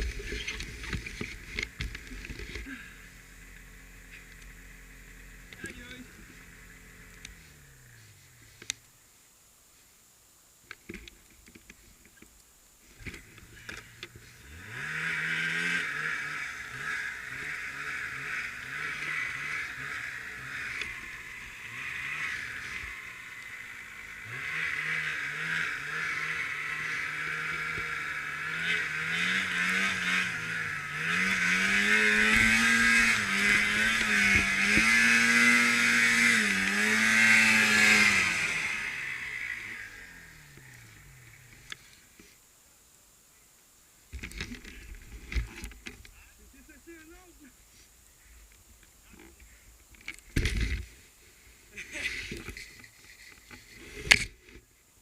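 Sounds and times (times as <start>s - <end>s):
snowmobile engine revving: 0.0s - 8.4s, 13.1s - 42.1s, 50.3s - 54.6s.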